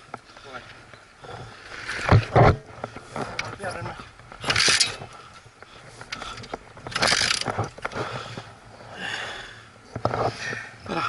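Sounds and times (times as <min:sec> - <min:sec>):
motorcycle clicks and rattles: 0:04.2 - 0:05.1, 0:06.0 - 0:08.1.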